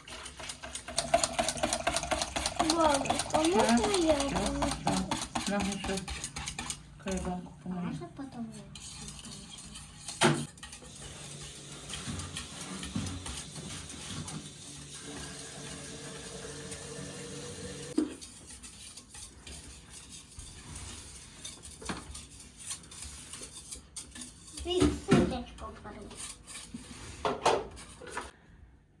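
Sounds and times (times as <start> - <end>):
utensil stirring batter in bowl: 0.0 - 28.4
utensil knocking on bowl: 1.0 - 7.4.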